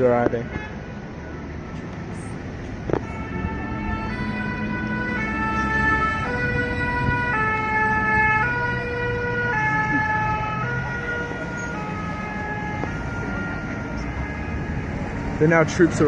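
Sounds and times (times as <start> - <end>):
street traffic rumble: 0.0 - 16.0
two-tone emergency siren: 2.9 - 15.4.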